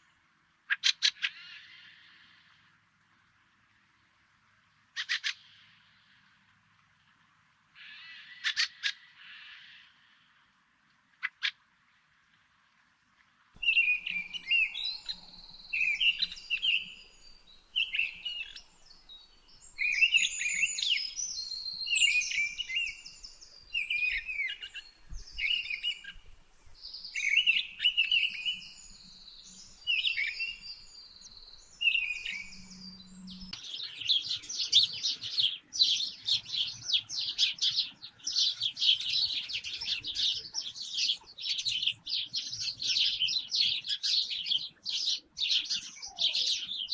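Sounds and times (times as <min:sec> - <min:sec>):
birds singing: 0:13.6 - 0:46.9
chatter of many birds: 0:13.6 - 0:46.9.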